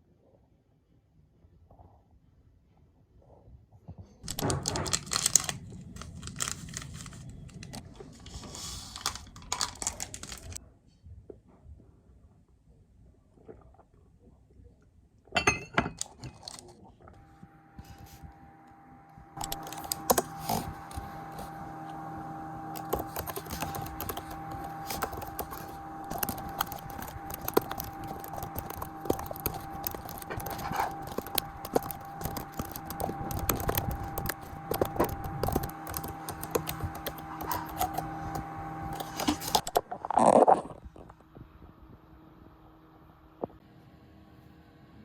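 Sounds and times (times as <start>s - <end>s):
faint electrical hum: 3.9s - 45.0s
keyboard typing clicks: 4.3s - 7.9s, 19.4s - 22.0s, 22.7s - 39.8s.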